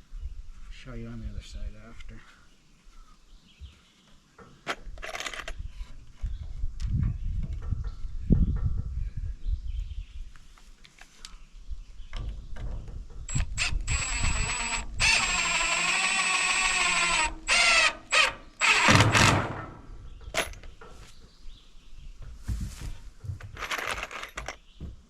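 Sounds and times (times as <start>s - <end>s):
cordless drill driving screws: 13.3s - 19.7s
knocks of wood being handled: 22.2s - 25.0s.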